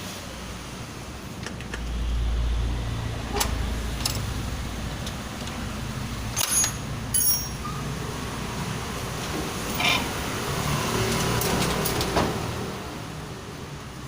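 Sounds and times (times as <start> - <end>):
metal tools clinking: 6.3 - 7.8.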